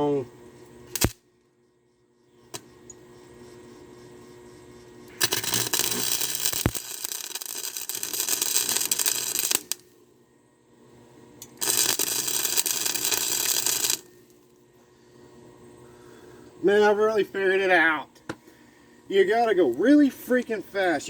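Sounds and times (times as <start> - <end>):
welding arc crackling: 0.9 - 1.2, 5.1 - 10.0, 11.4 - 14.5.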